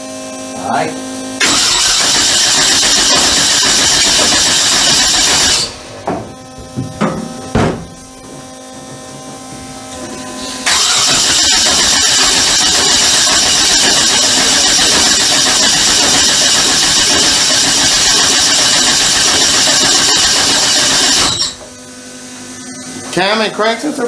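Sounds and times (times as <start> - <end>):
engine starter cranking: 1.4 - 6.0, 10.4 - 21.6.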